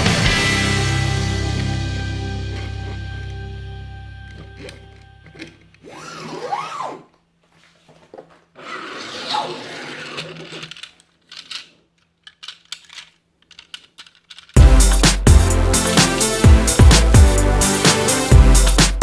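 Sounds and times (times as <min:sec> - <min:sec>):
plastic toy parts clicking: 0:10.1 - 0:14.6.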